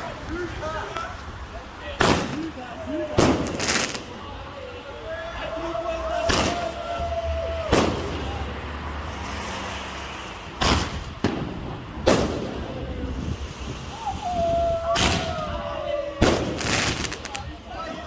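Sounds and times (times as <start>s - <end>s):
crowd noise: 0.0s - 18.0s
fireworks bangs: 2.0s - 4.3s, 6.2s - 7.0s, 7.7s - 8.5s, 10.6s - 13.8s, 14.8s - 17.6s.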